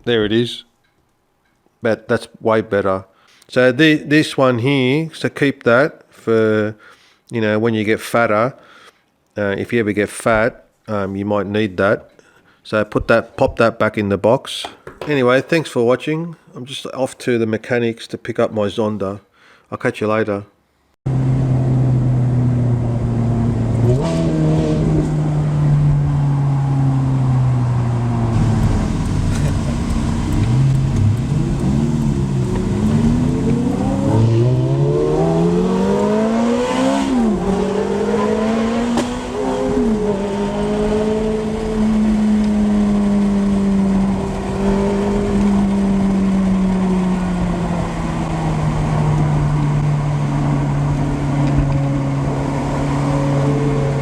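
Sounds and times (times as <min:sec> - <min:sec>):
car engine revving: 0:21.1 - 0:54.0.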